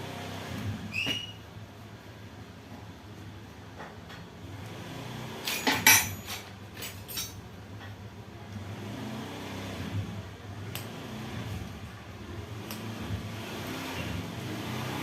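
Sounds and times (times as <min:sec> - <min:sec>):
low mechanical hum: 0:00.0 - 0:15.0
metal tools clinking: 0:05.5 - 0:07.4.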